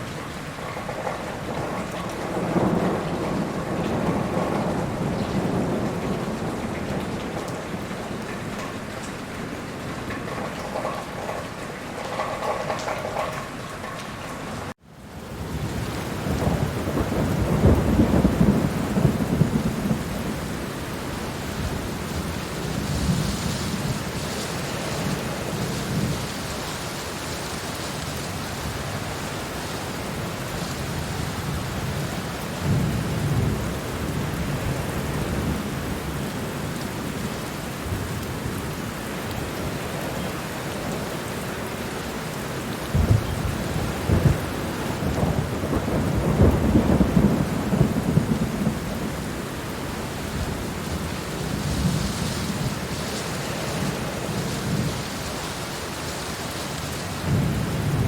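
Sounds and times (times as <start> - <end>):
heavy rain: 0.0 - 58.0
thunder rolling: 0.7 - 8.4, 14.6 - 36.5, 42.8 - 58.0
sharp thunderclap: 15.5 - 20.9, 42.9 - 49.2, 57.2 - 58.0.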